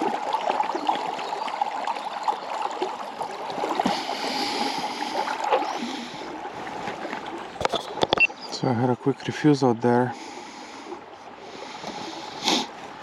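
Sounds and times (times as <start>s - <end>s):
river babbling over stones: 0.0s - 8.0s.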